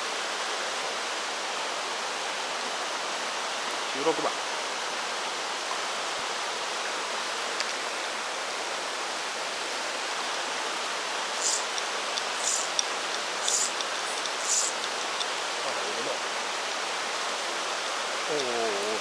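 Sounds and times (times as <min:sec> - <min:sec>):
stream flowing: 0:07.8 - 0:18.3
high hissing swishes: 0:11.3 - 0:15.4.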